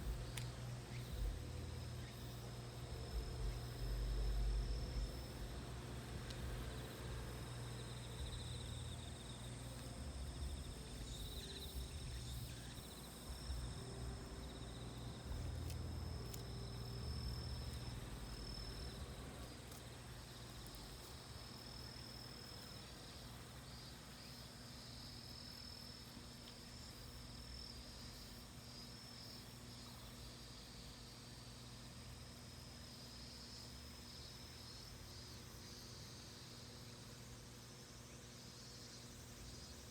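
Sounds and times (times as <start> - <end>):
cicadas singing: 0.0 - 39.9.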